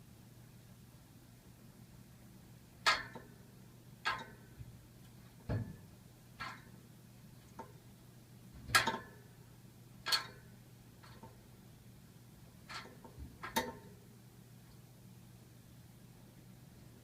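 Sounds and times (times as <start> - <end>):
faint low hum: 0.0 - 17.0
radiator pipes ticking and knocking: 2.8 - 6.8, 8.5 - 9.4, 10.0 - 11.5, 12.6 - 14.0.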